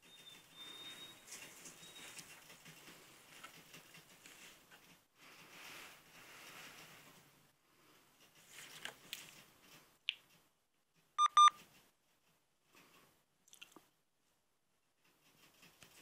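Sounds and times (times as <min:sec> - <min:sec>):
faint clicks and rustles: 0:00.0 - 0:16.0
short electronic beeps: 0:11.2 - 0:11.5.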